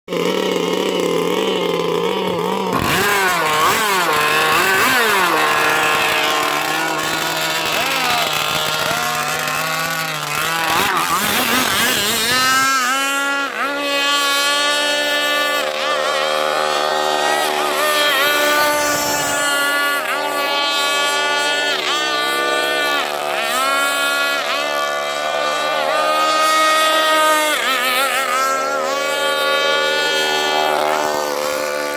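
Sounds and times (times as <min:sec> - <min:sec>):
model boat engine revving: 0:00.1 - 0:31.9.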